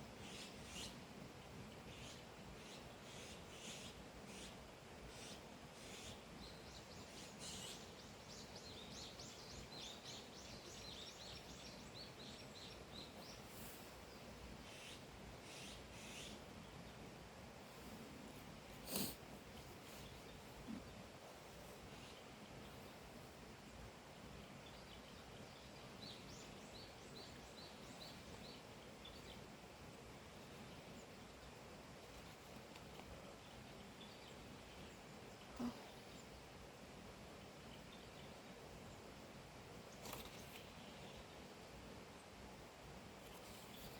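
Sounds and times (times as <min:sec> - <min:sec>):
songbird chirping: 0:00.0 - 0:36.6
faint outdoor hiss: 0:00.0 - 0:43.9.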